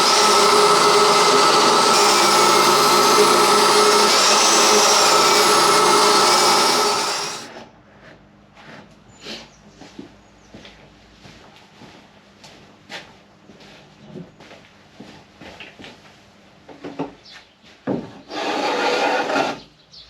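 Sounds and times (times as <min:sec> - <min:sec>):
power tool motor whining: 0:00.0 - 0:07.5.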